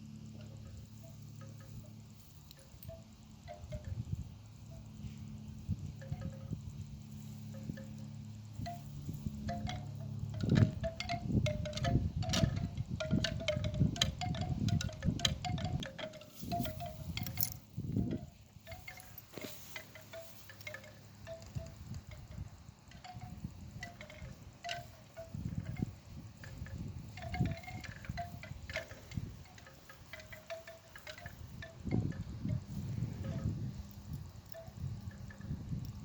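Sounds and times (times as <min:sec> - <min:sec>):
wind chimes ringing: 0:00.0 - 0:36.0
wind buffeting microphone: 0:02.5 - 0:36.0.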